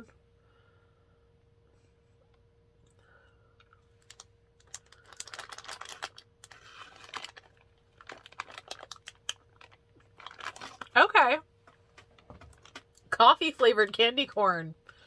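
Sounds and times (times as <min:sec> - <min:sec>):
chewing candy clicks and crackles: 0:03.6 - 0:11.0.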